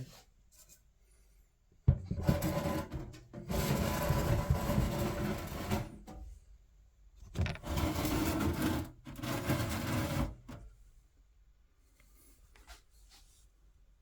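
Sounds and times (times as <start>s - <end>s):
rubbing and scraping handling noise: 1.9s - 6.4s, 7.2s - 11.0s, 11.8s - 13.8s.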